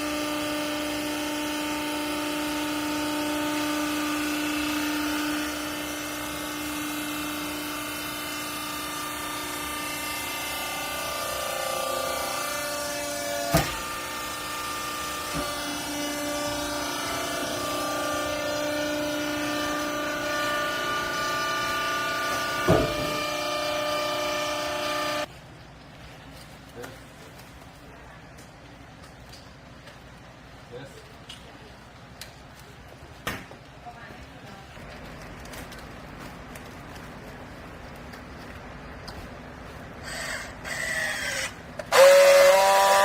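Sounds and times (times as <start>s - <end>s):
hydraulic pump motor whining: 0.0s - 25.3s, 40.0s - 43.0s
sharp bang: 22.6s - 23.4s.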